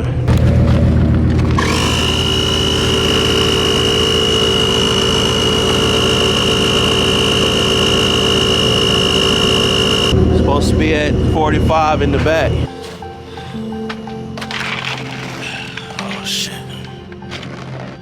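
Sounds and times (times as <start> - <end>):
rising whine: 0.0 - 12.7
tire inflator buzzing hum: 0.3 - 10.2.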